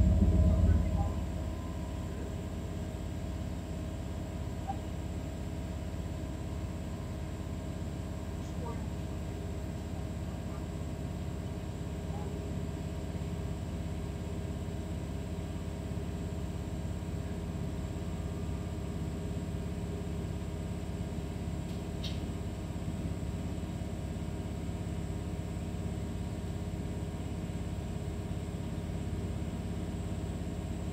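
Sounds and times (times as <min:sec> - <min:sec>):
turbocharger whine: 0:00.0 - 0:08.3
diesel railcar engine droning: 0:00.0 - 0:30.9.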